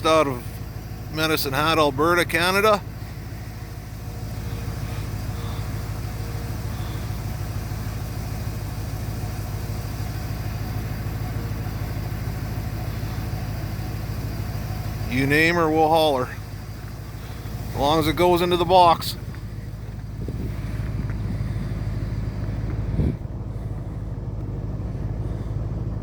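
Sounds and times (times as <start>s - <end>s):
low engine hum: 0.0s - 26.0s.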